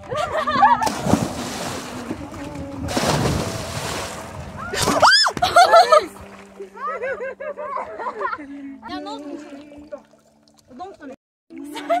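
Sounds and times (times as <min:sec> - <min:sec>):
people splashing into water: 0:00.1 - 0:07.0
people shouting: 0:04.6 - 0:05.6.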